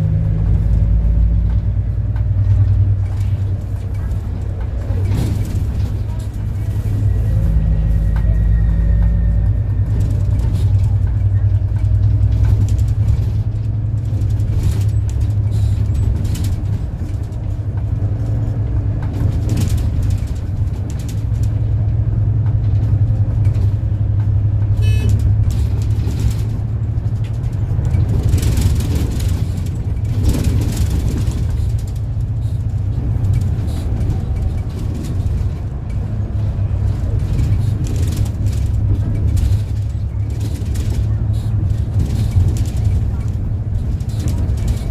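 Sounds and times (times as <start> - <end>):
bus engine rumble: 0.0 - 44.9
body knocks and rattles: 22.4 - 44.9.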